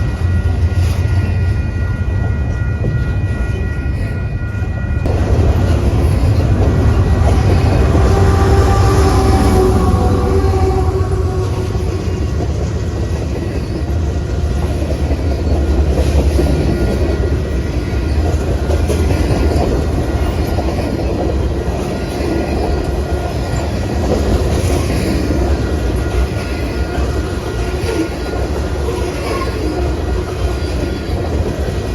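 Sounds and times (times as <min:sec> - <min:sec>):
train wheels rumbling on rails: 0:00.0 - 0:31.9
wheels clickety-clack: 0:11.4 - 0:31.9.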